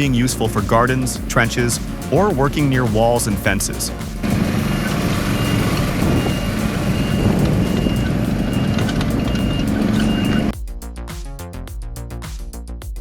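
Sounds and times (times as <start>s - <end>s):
heavy machine engine running: 1.6s - 10.5s
reversing alarm beeping: 4.2s - 10.5s.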